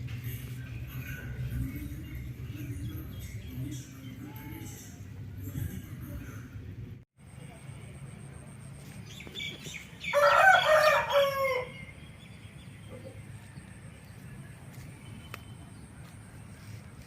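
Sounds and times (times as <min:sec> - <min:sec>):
rooster crowing: 0:10.0 - 0:12.0.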